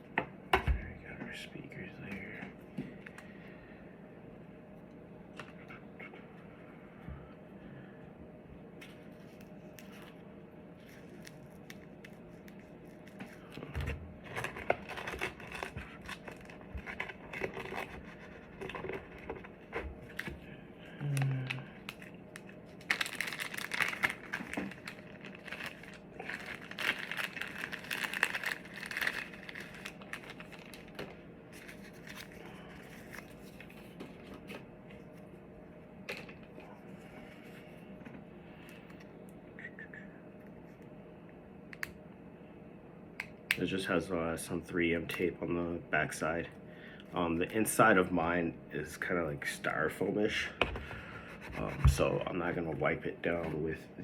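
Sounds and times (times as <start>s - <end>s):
wrapping crinkling: 10.8s - 13.5s, 14.2s - 20.3s, 21.0s - 34.5s.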